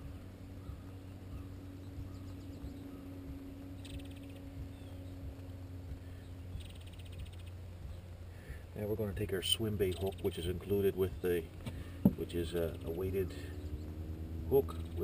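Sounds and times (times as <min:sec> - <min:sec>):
bird trill: 0:00.0 - 0:08.1, 0:09.6 - 0:11.5
low outdoor hum: 0:00.0 - 0:15.0.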